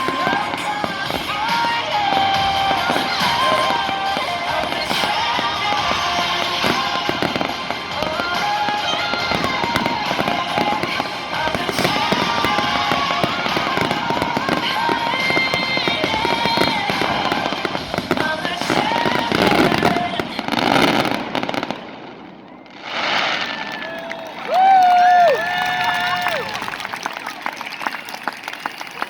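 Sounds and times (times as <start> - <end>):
melodic music: 0.0 - 21.7
fireworks bangs and crackling: 0.0 - 27.3.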